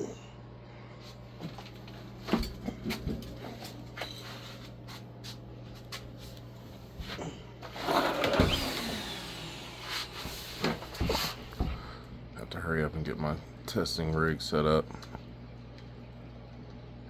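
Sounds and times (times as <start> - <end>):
steady low hum: 0.0 - 17.0
rustling scrape: 7.6 - 8.4.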